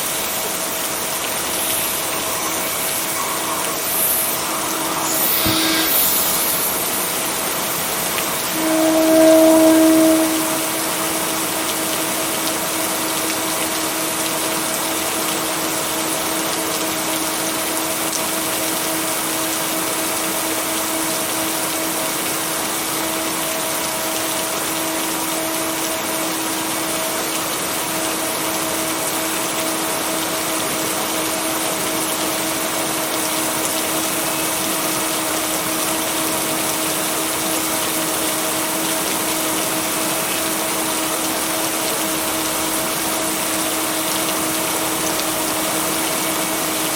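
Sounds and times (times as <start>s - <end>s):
rain hiss: 0.0s - 46.9s
low steady hum tone: 8.4s - 11.7s.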